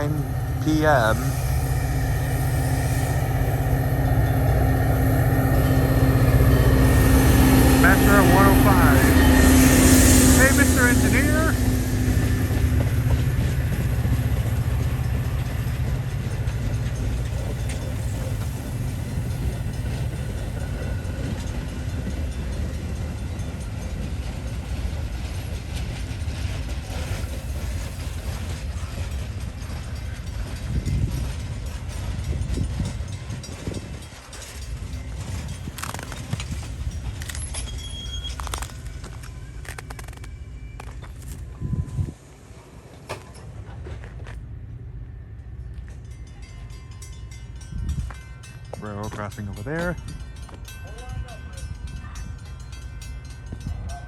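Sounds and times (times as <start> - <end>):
train clanks and rattles: 0.0 - 54.0
train rumbling past: 0.0 - 54.0
high squeal: 37.3 - 41.8.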